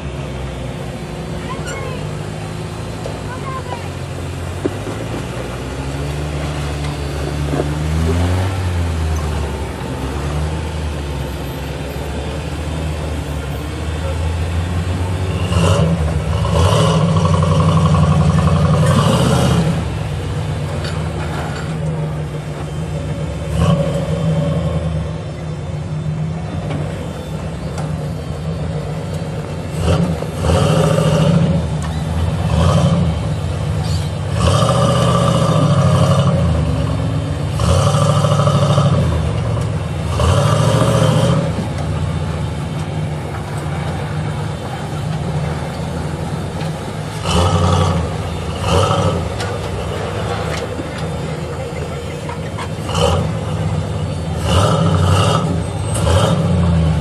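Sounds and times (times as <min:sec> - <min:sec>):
engine revving in bursts: 0:14.4 - 0:20.4, 0:23.3 - 0:25.2, 0:29.7 - 0:42.3, 0:47.1 - 0:51.2, 0:52.7 - 0:57.0.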